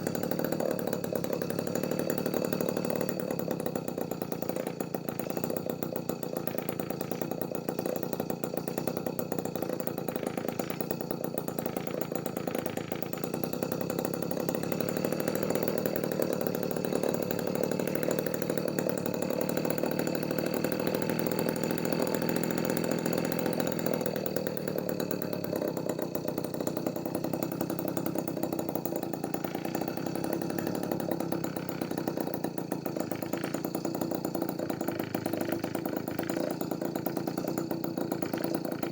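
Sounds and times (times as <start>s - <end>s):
small two-stroke engine idling: 0.0s - 38.9s.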